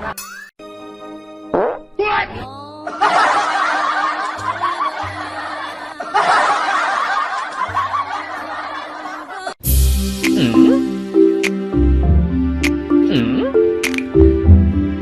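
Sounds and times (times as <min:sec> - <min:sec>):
background music: 0:00.0 - 0:15.0
crowd laughter: 0:02.9 - 0:09.6.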